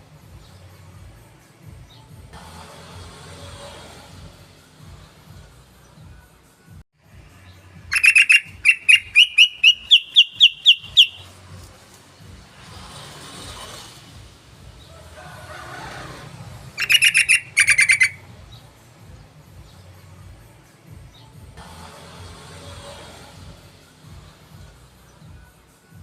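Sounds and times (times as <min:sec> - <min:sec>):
bird singing chattering song: 0:07.9 - 0:11.4, 0:16.8 - 0:18.7.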